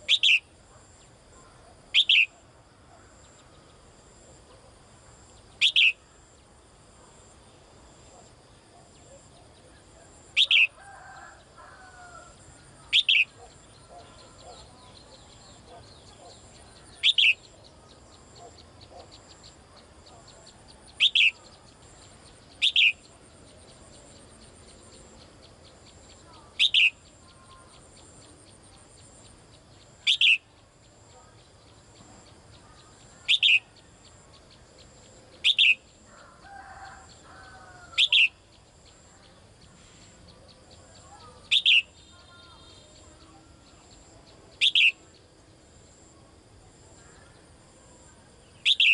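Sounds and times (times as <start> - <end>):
bird giving sharp calls: 5.6 - 6.0, 12.9 - 14.7, 48.6 - 48.9.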